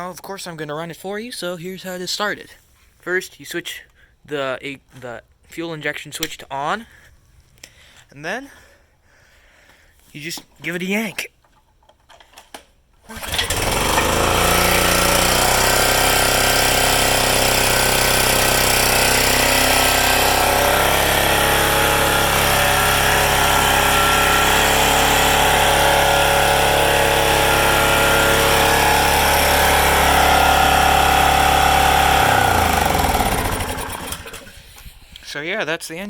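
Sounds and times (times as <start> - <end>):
recoil starter pull: 13.0 - 34.6
small petrol engine running: 13.1 - 34.6.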